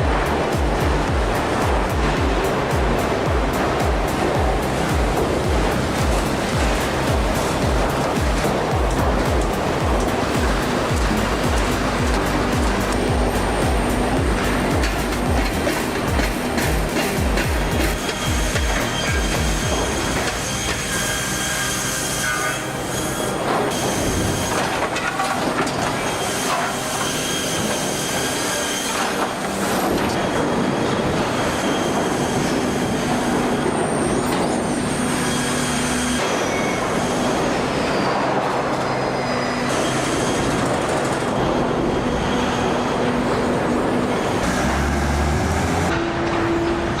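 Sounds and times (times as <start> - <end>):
heavy machinery running: 0.0 - 47.0
sustained squealing tones: 1.3 - 47.0.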